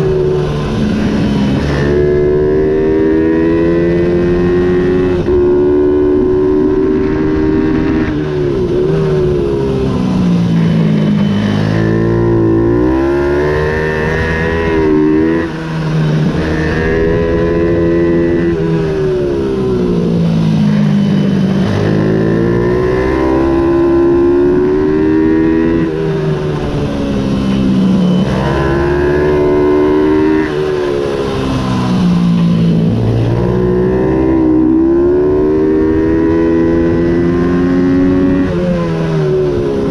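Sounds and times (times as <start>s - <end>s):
minibike engine accelerating: 0.0s - 39.9s.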